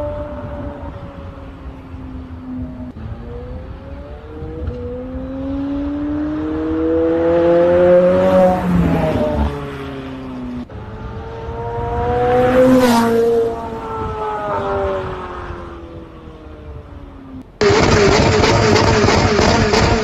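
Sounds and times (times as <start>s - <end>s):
car engine accelerating past: 4.2s - 15.8s.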